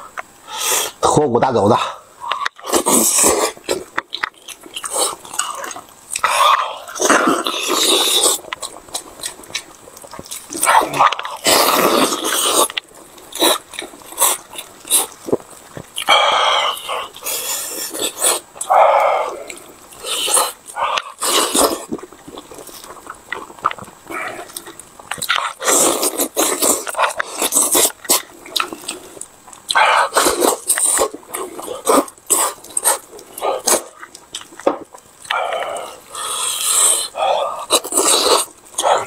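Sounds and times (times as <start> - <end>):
open-mouthed chewing and smacking: 0.0 - 39.0.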